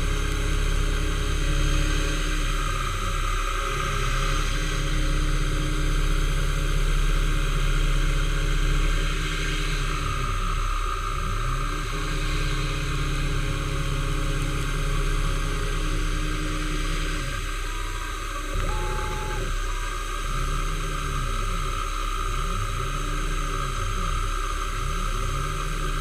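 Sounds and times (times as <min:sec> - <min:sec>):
machine tool humming: 0:00.0 - 0:26.0
brief higher tone: 0:18.5 - 0:19.5.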